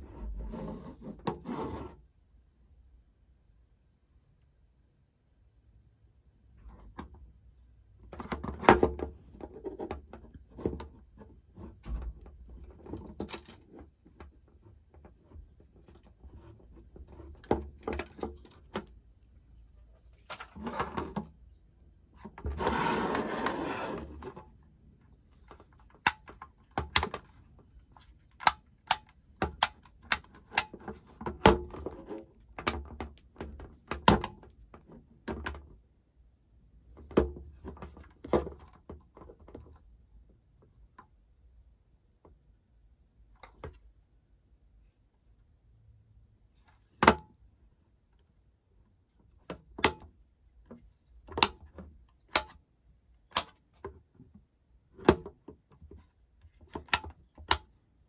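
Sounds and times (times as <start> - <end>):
plastic clicks and knocks: 50.7 - 52.6.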